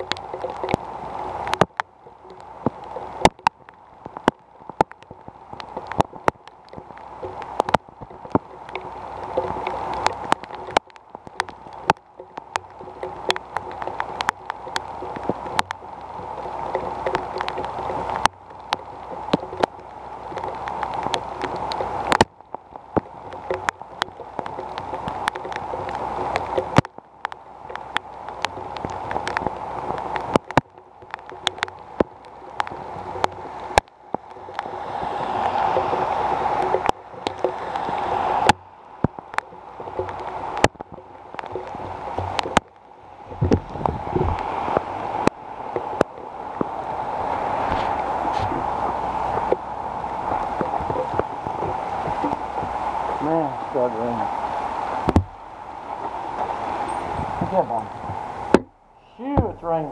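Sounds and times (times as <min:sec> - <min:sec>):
heavy rain pouring: 0:00.0 - 0:59.9
raindrops clicking on microphone: 0:00.0 - 0:59.9
car driving past on wet road: 0:27.7 - 0:40.7, 0:43.2 - 0:59.9.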